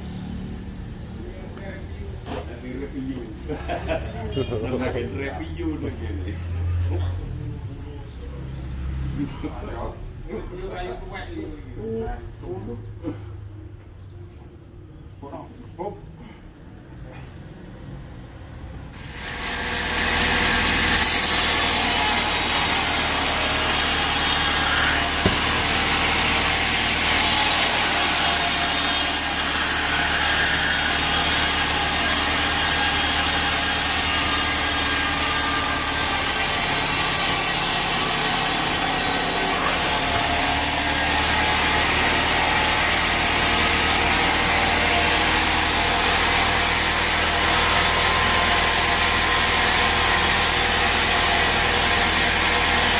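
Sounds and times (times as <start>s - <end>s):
bandsaw cutting log: 19.0s - 52.9s.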